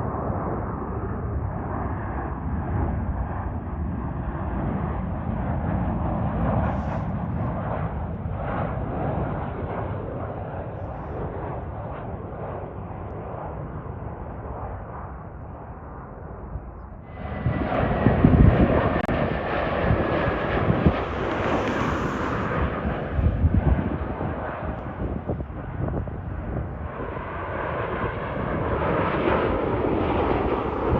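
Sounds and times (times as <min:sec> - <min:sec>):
jet engines rushing: 0:00.0 - 0:30.9
low gusty rumbling: 0:00.0 - 0:30.9
faint high engine whine: 0:16.6 - 0:29.2.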